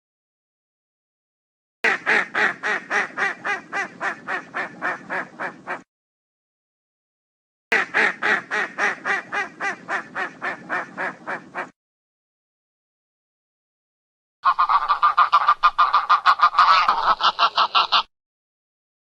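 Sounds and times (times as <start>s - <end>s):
duck quacking rapidly: 1.8s - 5.8s, 7.7s - 11.7s, 14.5s - 18.1s.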